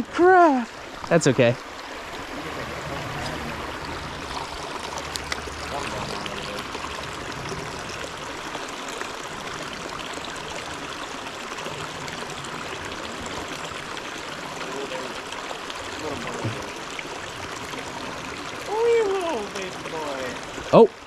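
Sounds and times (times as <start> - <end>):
creek water flowing: 0.0 - 21.0.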